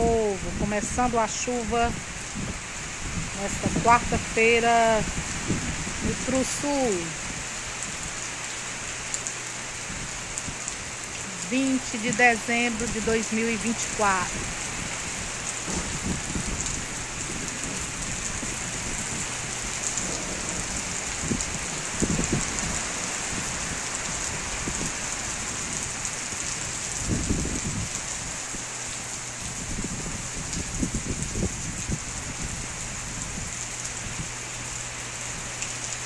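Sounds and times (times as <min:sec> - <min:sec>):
rain on trees and ground: 0:00.0 - 0:36.0
low rumbles: 0:13.8 - 0:23.6.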